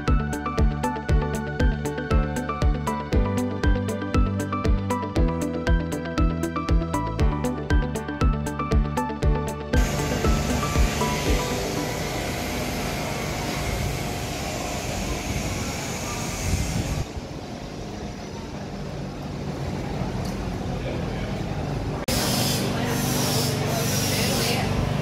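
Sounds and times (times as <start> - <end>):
steady hum: 9.7 - 25.0
train rushing noise: 9.8 - 20.7.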